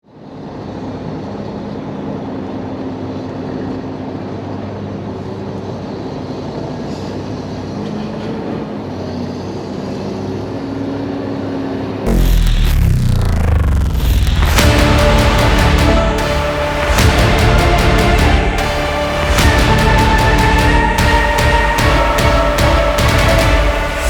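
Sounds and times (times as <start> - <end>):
heavy vehicle engine drone: 12.1 - 24.0.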